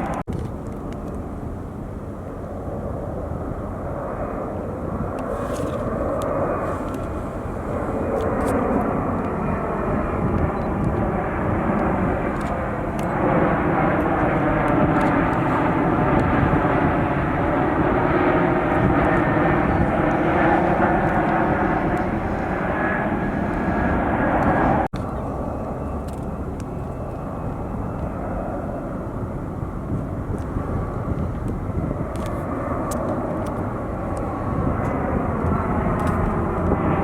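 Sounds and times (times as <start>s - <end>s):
jet airliner engines passing: 0.0s - 37.0s.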